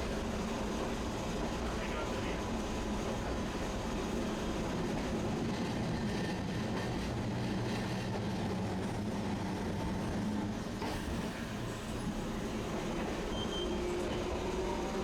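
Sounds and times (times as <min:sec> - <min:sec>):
streetcar wheels on tracks: 0:00.0 - 0:15.0.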